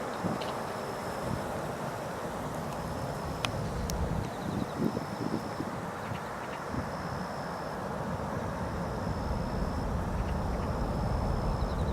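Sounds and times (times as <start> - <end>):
jet engines rumbling: 0.0 - 11.9.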